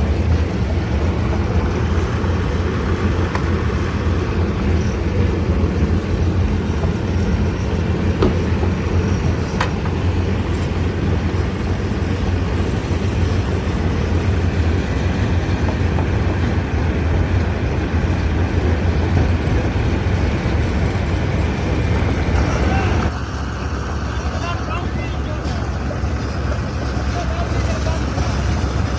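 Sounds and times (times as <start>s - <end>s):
stone crusher rumbling: 0.0s - 23.1s, 24.1s - 28.9s
sharp knocks: 8.1s - 10.2s.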